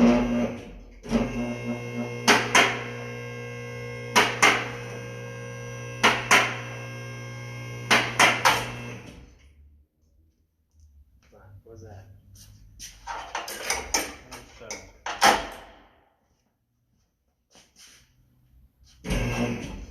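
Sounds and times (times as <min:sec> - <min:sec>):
hydraulic pump motor humming: 0:00.0 - 0:09.3, 0:19.0 - 0:19.9.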